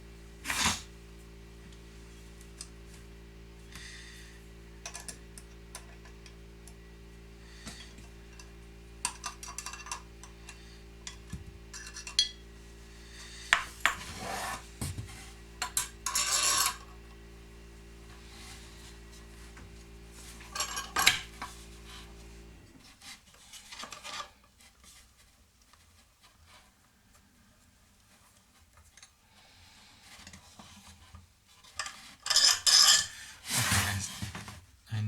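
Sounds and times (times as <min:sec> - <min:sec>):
steady low hum: 0:00.0 - 0:22.8, 0:33.4 - 0:35.0.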